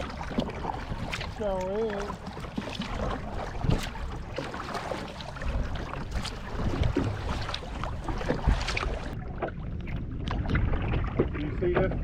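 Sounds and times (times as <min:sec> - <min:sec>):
kayak paddle splashing in water: 0:00.0 - 0:12.0
wind rumble on microphone: 0:02.8 - 0:04.4, 0:05.3 - 0:12.0.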